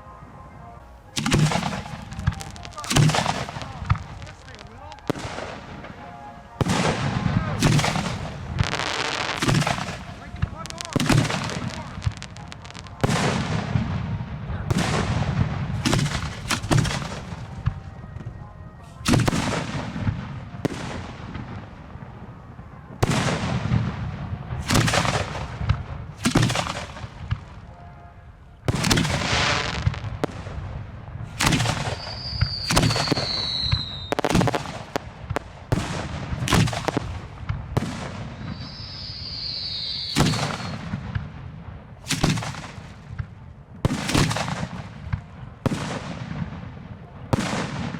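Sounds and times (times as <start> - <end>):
fireworks sharp bangs: 1.1 - 47.9
high falling whistles: 31.9 - 34.2, 38.5 - 40.8.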